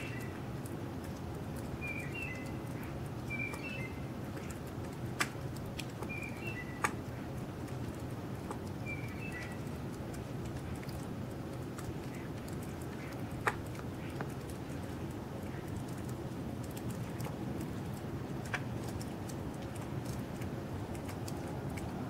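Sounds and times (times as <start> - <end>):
bird chirping: 0.0 - 0.4, 1.8 - 4.0, 6.0 - 6.9, 8.8 - 9.7
low background noise: 0.0 - 22.0.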